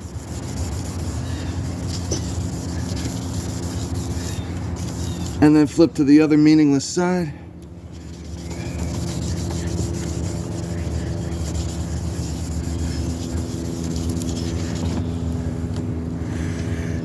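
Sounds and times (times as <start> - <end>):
wet sandpaper rubbing on plastic: 0.0 - 5.8, 7.9 - 15.3
low hum: 0.0 - 17.0.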